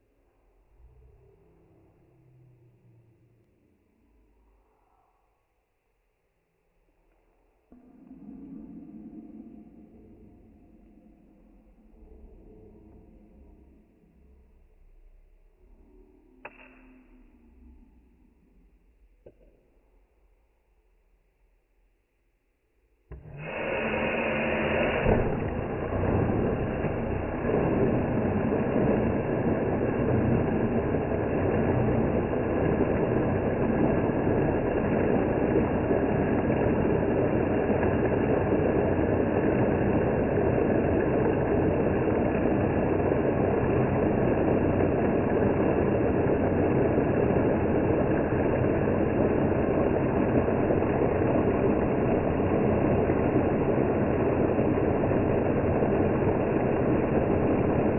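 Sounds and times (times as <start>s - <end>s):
blender motor whirring: 23.1s - 57.9s
water spinning in blender jar: 23.1s - 57.9s.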